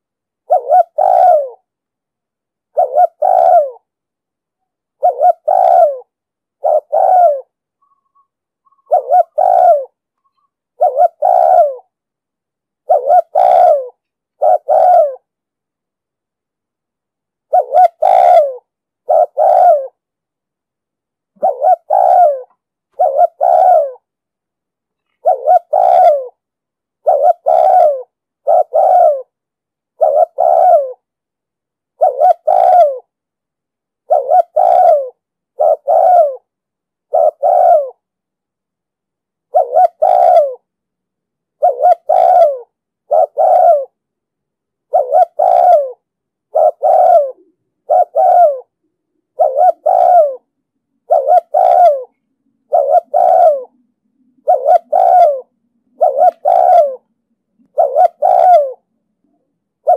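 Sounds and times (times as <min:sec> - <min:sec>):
dove cooing: 0:00.0 - 0:01.7, 0:02.7 - 0:03.9, 0:05.0 - 0:12.0, 0:12.8 - 0:15.3, 0:17.4 - 0:20.0, 0:21.3 - 0:24.1, 0:25.0 - 0:26.4, 0:27.0 - 0:29.4, 0:30.0 - 0:31.1, 0:32.0 - 0:33.1, 0:34.0 - 0:36.5, 0:37.1 - 0:38.0, 0:39.5 - 0:40.7, 0:41.6 - 0:44.0, 0:44.9 - 0:59.9.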